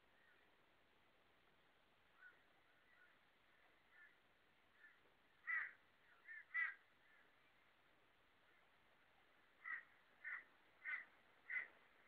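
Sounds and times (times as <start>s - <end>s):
faint steady hiss: 0.0s - 12.0s
distant bird call: 2.1s - 7.8s, 8.4s - 12.0s.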